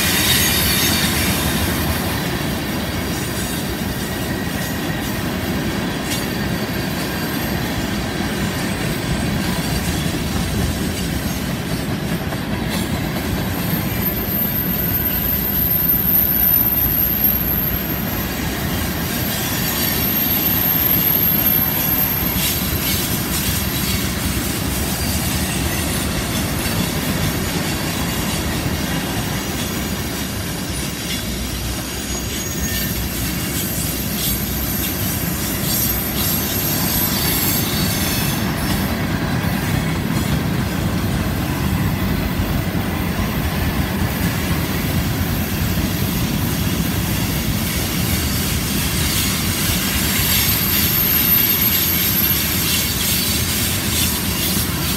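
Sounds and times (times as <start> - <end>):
high-pitched wheel flange squeal: 0.0 - 2.4, 6.0 - 10.0, 13.5 - 26.9, 29.4 - 39.0, 47.4 - 54.9
steel wheels rumbling on rail: 0.0 - 54.9.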